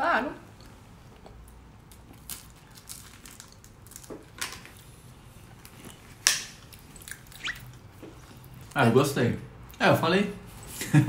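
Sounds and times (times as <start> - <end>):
crisp pastry shell crunching: 1.9 - 4.8.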